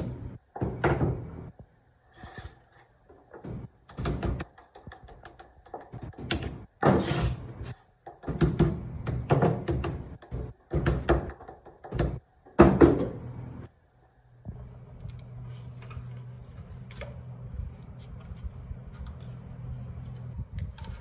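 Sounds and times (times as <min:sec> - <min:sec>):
mechanical clicks and knocks: 0:03.9 - 0:06.6.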